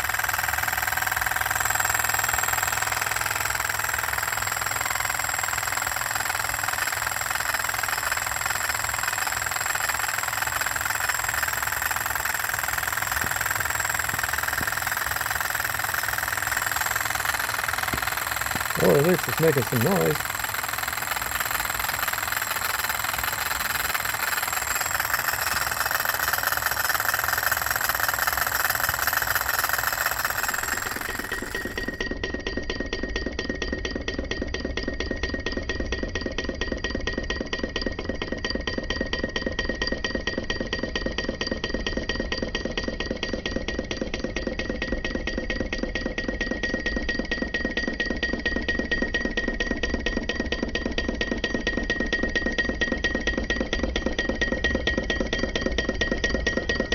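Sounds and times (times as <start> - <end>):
model engine ticking clatter: 0.0 - 32.0.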